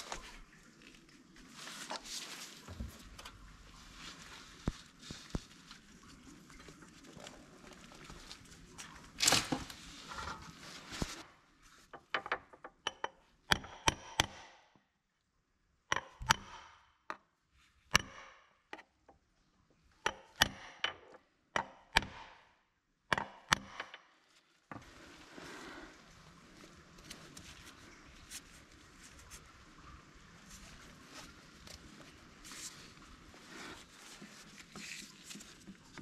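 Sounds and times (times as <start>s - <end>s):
handling and rustling: 0.0s - 12.7s, 24.1s - 36.0s.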